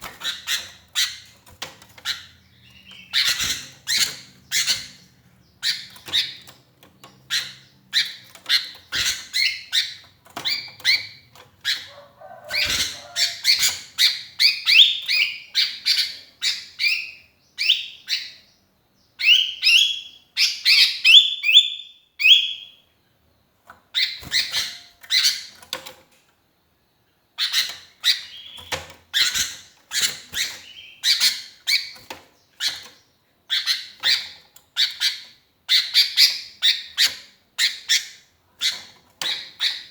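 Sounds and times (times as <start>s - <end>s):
bird chirping rapidly: 0.0s - 22.8s, 27.4s - 39.9s.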